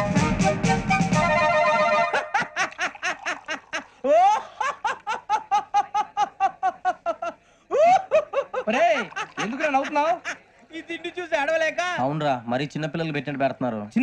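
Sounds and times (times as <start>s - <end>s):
person laughing hard: 2.1s - 10.4s.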